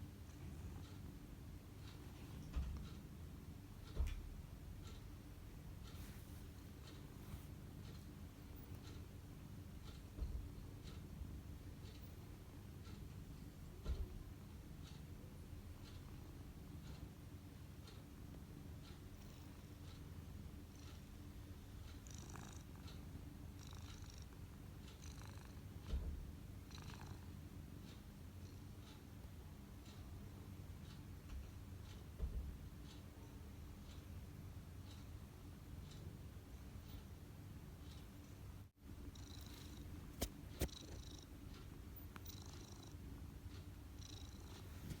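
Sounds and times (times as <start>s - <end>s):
soft scratchy rustles: 5.8s - 7.8s, 44.5s - 45.0s
cat purring: 21.9s - 22.9s, 23.5s - 25.7s, 26.6s - 27.3s, 39.0s - 39.9s, 40.6s - 43.0s, 43.8s - 45.0s.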